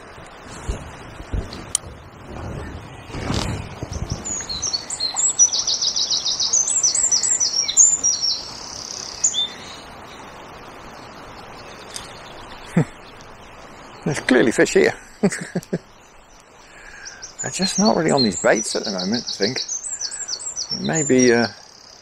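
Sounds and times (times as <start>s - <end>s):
low rumble: 0.0s - 5.1s
river water rushing: 0.0s - 15.3s, 16.2s - 22.0s
songbird singing: 0.0s - 22.0s.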